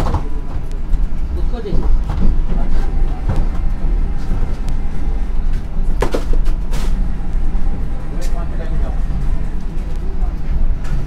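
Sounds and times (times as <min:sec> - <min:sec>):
train rumble heard inside coach: 0:00.0 - 0:11.0
faint voices: 0:07.6 - 0:11.0.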